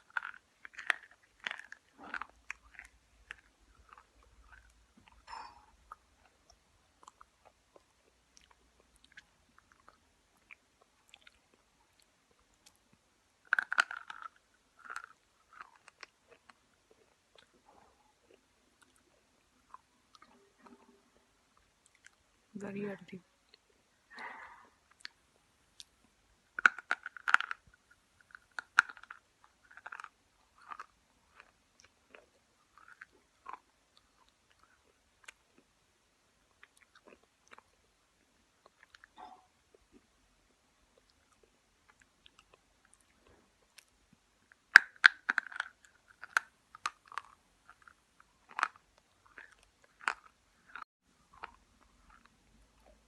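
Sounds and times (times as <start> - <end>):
brittle crunching: 0.0 - 4.8, 13.5 - 16.1
soft chewing: 0.0 - 22.5, 23.2 - 53.0.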